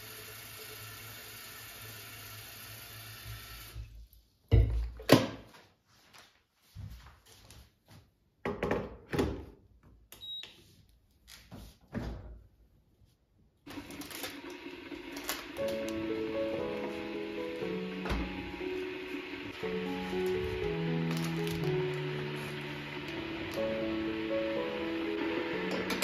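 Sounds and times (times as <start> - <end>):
tap water running into kettle: 0.0 - 3.8, 13.7 - 26.0
soft music: 14.9 - 26.0
kettle knocking and clattering: 25.7 - 26.0.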